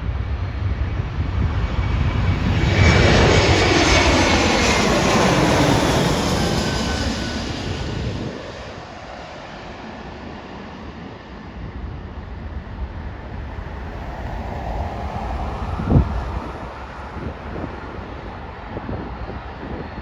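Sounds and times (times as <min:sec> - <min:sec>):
wind on microphone: 0:00.0 - 0:09.2, 0:10.9 - 0:20.0
jet engine noise: 0:00.0 - 0:20.0
low rumble: 0:12.1 - 0:18.6.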